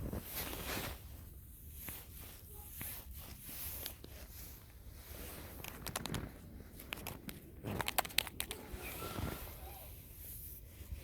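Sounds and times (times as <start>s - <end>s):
soft rustling: 0.0s - 11.0s
sharp clicks and crackles: 5.5s - 8.7s.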